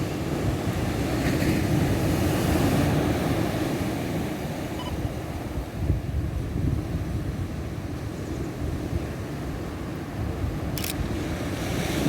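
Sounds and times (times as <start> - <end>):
wind on microphone: 0.0 - 12.0
camera double beep: 4.8 - 5.1, 10.8 - 11.0.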